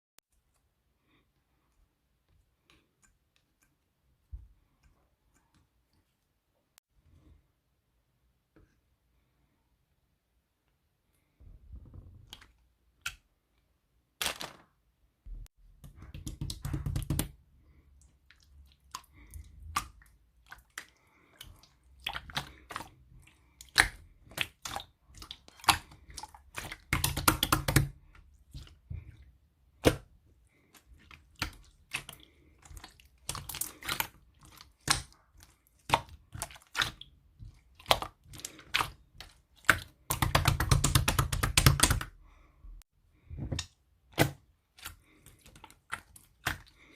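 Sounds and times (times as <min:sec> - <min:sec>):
slime squished by hand: 0:18.3 - 0:42.1.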